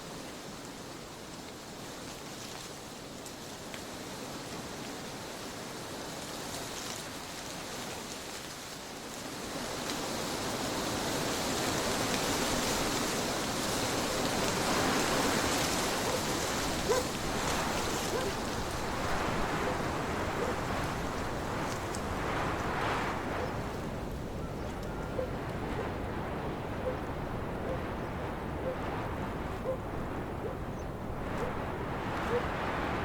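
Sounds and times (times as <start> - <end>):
wind blowing: 10.2 - 33.0.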